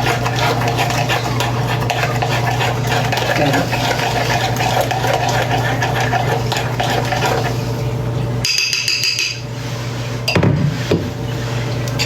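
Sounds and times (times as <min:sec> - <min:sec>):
spoon stirring in a bowl: 0:00.0 - 0:09.6.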